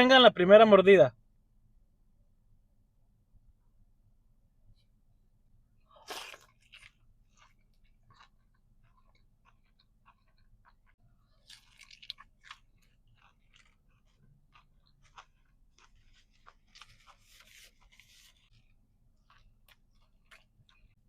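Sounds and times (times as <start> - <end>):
person chewing crunchy food: 5.8 - 21.0.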